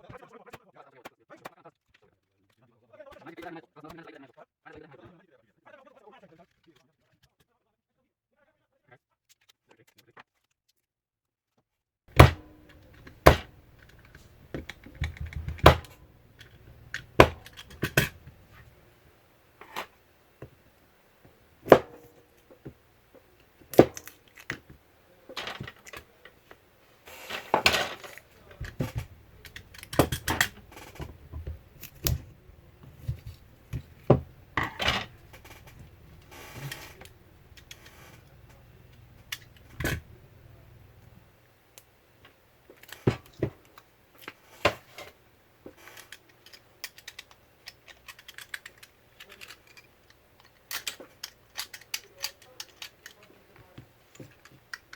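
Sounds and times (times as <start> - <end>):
tools clicking and knocking: 12.1 - 18.8, 21.6 - 40.8, 42.7 - 54.9
scraping and rattling: 25.3 - 40.9.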